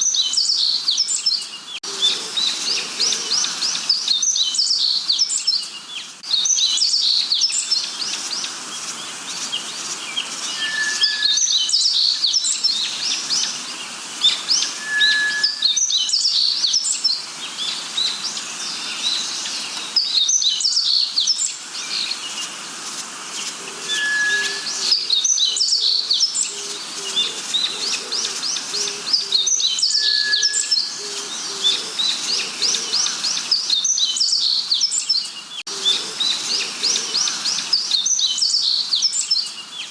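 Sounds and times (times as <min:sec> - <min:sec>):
bird chirps and trills: 0:00.0 - 0:39.9
bird whistle: 0:10.5 - 0:12.4, 0:14.6 - 0:16.8, 0:23.9 - 0:26.2, 0:29.5 - 0:31.2.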